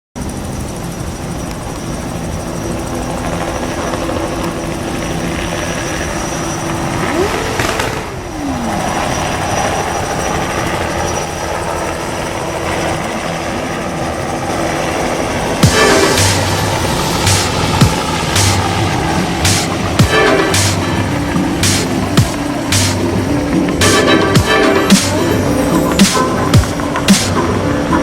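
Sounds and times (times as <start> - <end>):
motorcycle engines running: 0.2 - 28.0
motorcycle engine revving: 3.5 - 11.1, 15.6 - 28.0.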